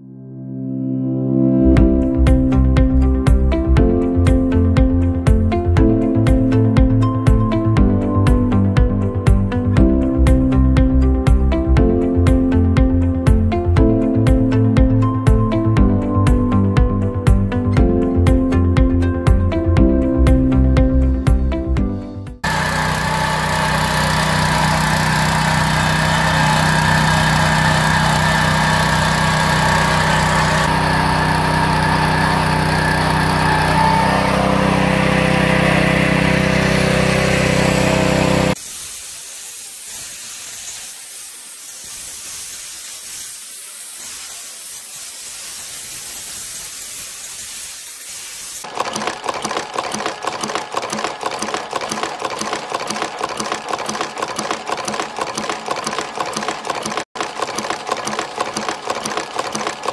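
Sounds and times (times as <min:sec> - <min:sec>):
small petrol engine running: 0:22.4 - 0:38.6, 0:48.6 - 0:59.9
chain-making machine clatter: 0:48.6 - 0:59.9.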